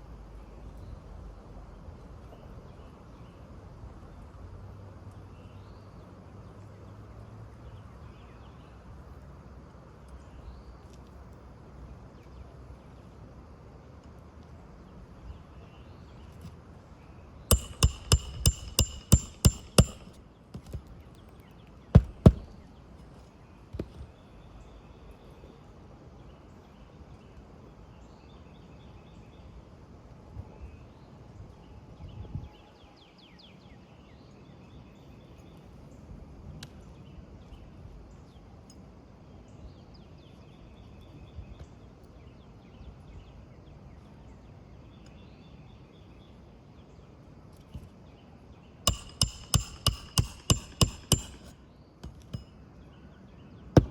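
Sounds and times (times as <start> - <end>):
low outdoor background: 0.0 - 53.9
hammer striking nails: 17.5 - 20.9, 22.0 - 22.6, 48.9 - 52.5.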